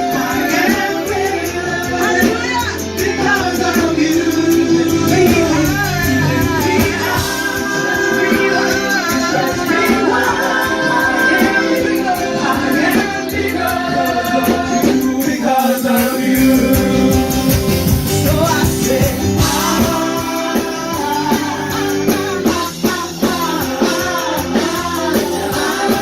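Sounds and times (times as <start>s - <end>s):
group of voices singing: 0.0s - 26.0s
worship band playing: 0.0s - 26.0s.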